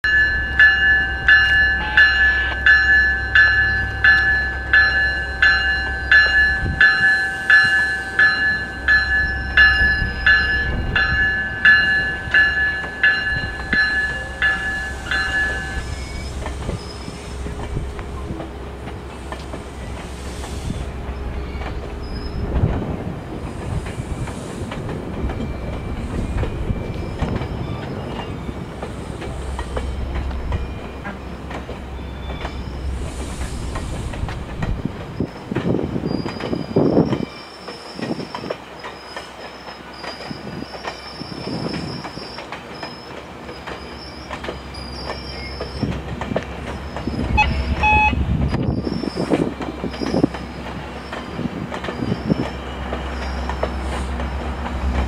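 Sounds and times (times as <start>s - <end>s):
train bell ringing: 0.0s - 22.5s, 23.6s - 33.9s, 46.6s - 54.0s
train coaches rumbling and clattering: 0.0s - 55.0s.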